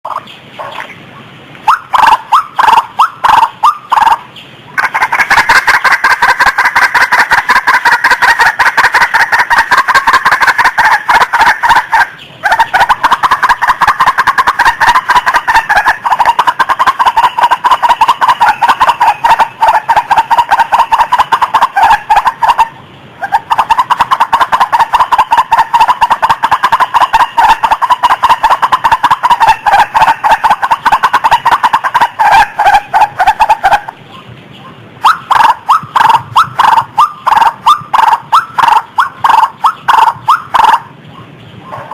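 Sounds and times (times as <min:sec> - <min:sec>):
waterhen calling harsh notes: 0:00.1 - 0:41.9.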